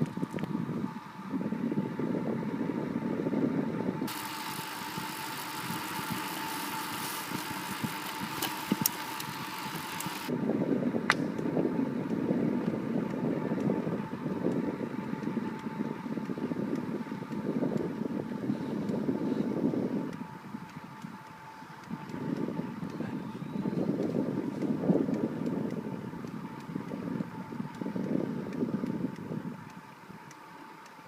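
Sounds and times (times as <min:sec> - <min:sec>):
wind on microphone: 0:00.0 - 0:30.3.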